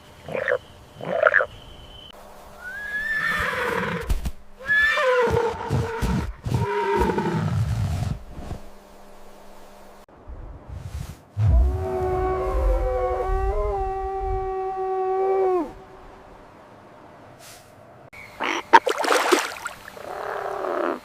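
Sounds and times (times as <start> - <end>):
animal croaks: 0.2 - 1.5, 18.4 - 18.9, 20.0 - 21.0
long falling animal calls: 11.4 - 16.6, 20.0 - 21.0.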